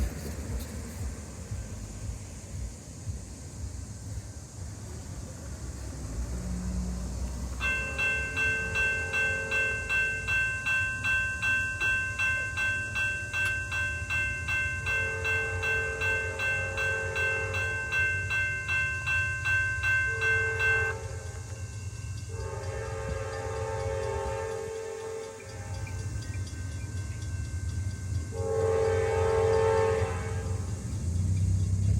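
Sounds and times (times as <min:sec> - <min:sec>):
railroad crossing bell ringing: 0:00.0 - 0:02.7, 0:06.0 - 0:31.9
low engine rumble: 0:00.0 - 0:11.0, 0:25.6 - 0:31.9
locomotive air horn blasts: 0:07.6 - 0:09.9, 0:14.9 - 0:17.9, 0:20.0 - 0:21.5, 0:22.3 - 0:26.2, 0:28.3 - 0:30.9.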